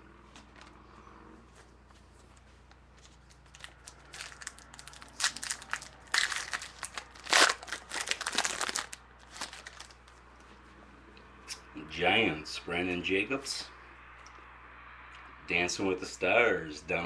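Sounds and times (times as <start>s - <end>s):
foil wrapper tearing and crinkling: 3.4s - 10.0s.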